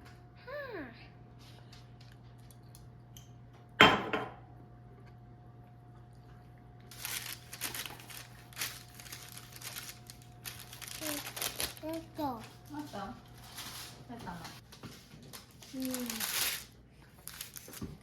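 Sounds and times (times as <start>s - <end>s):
crinkling and rustling: 6.9s - 18.0s.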